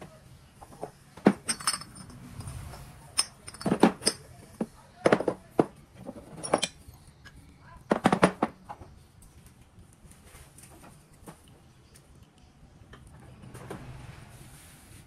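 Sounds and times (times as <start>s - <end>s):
metal tools clinking: 1.3s - 4.4s, 6.2s - 6.9s.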